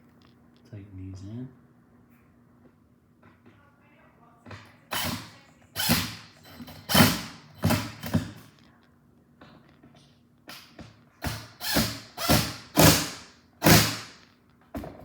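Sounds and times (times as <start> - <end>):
screwdriver turning screws: 4.9 - 8.2, 11.2 - 14.3.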